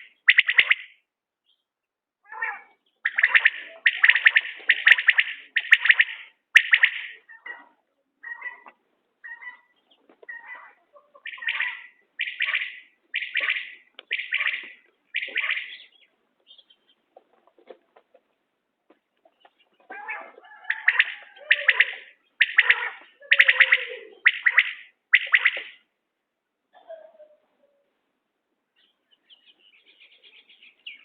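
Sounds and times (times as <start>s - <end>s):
quail calling: 0.0s - 1.0s, 2.2s - 18.1s, 19.2s - 25.9s.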